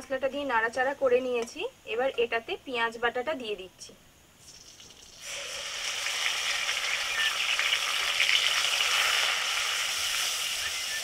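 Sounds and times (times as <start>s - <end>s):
onion paste sizzling in oil: 4.4s - 11.0s.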